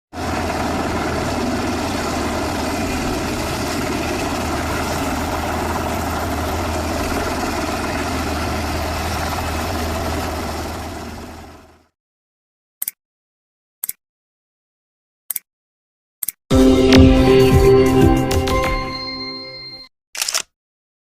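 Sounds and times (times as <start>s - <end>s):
engine running with low hum: 0.2s - 11.9s.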